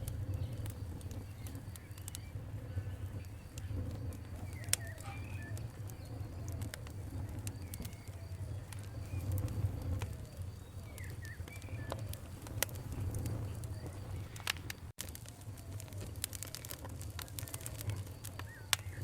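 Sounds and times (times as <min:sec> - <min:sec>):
campfire crackling and popping: 0:00.0 - 0:19.0
bird chirps: 0:04.4 - 0:09.4, 0:10.3 - 0:12.1, 0:17.3 - 0:19.0.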